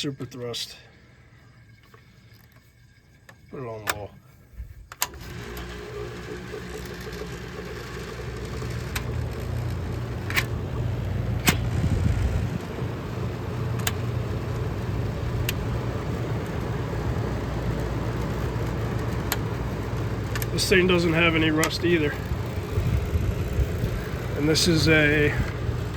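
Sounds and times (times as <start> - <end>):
air conditioner humming: 0.0 - 25.9
sharp clicks: 11.4 - 12.4.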